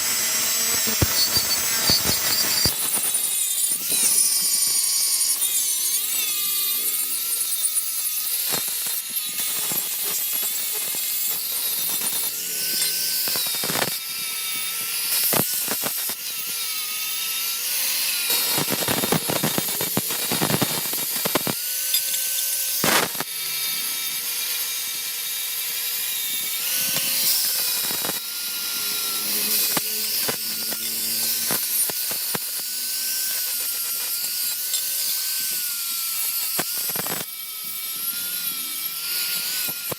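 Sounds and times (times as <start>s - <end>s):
power tool working metal: 0.0s - 39.9s.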